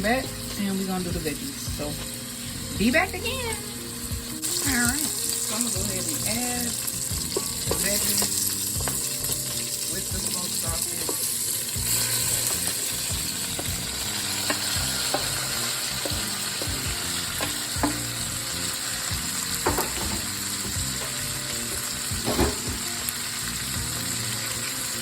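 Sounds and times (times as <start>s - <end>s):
vegetables sizzling in grease: 0.0s - 25.0s
utensil knocking against pot: 17.4s - 18.1s.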